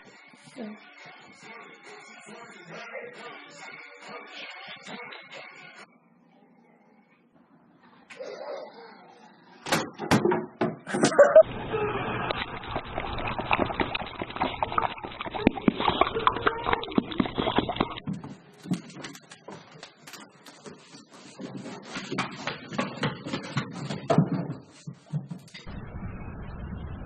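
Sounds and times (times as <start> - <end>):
dog noises: 8.0 - 9.6.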